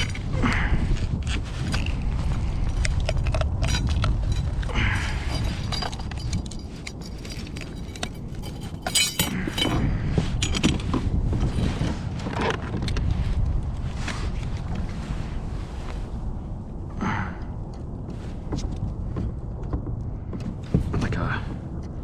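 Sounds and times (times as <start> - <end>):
low rumble of wind and water: 0.0 - 22.0
fishing gear clicking and clinking: 2.7 - 10.9
metallic clinking: 3.3 - 9.8.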